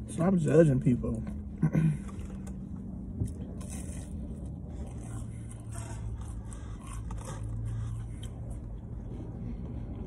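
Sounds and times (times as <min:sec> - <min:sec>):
chewing and crunching food: 0:00.0 - 0:10.0
low steady hum: 0:00.0 - 0:10.0.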